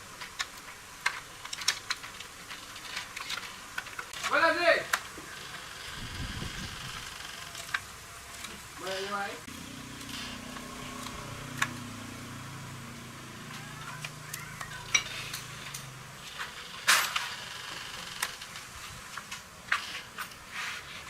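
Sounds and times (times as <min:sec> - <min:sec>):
low hum: 0:09.5 - 0:16.3.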